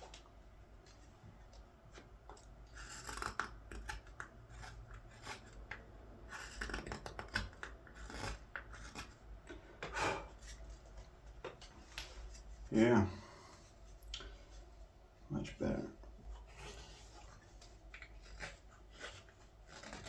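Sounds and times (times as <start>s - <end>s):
knife scraping wood: 1.9s - 11.1s, 16.3s - 20.0s.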